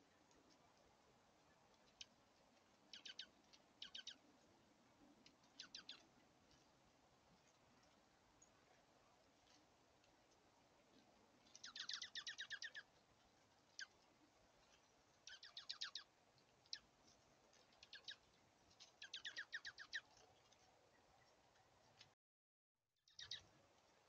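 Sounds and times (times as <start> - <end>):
bird trilling: 2.9 - 4.2, 5.6 - 6.0, 11.6 - 12.8, 15.3 - 16.1, 19.0 - 20.1, 23.1 - 23.4.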